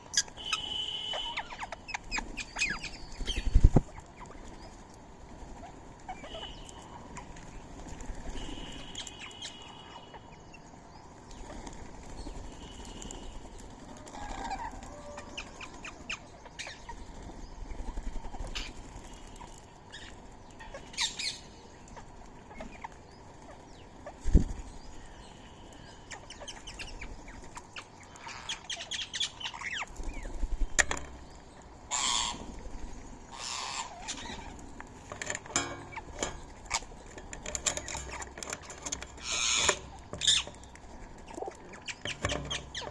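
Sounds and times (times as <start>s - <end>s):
parakeet calls: 0.0s - 4.4s, 5.6s - 7.3s, 8.2s - 10.6s, 18.2s - 22.9s, 25.0s - 30.8s, 31.9s - 32.5s, 33.3s - 34.6s, 37.6s - 40.7s
parakeet wings flapping: 11.4s - 21.3s, 29.5s - 31.2s.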